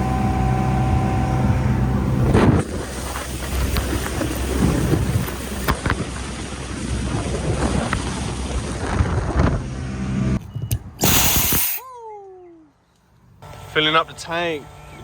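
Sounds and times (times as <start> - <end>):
boat engine rumble: 0.0 - 11.1, 12.0 - 15.0
wind buffeting microphone: 0.0 - 11.1.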